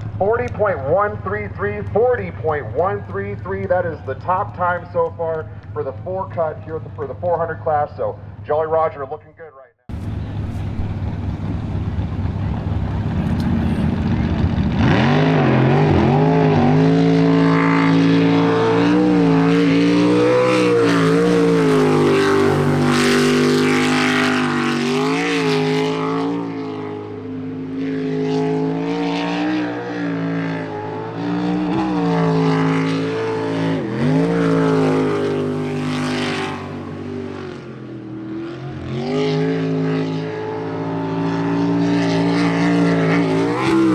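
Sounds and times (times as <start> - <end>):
jet boat engine racing: 9.9 - 43.9.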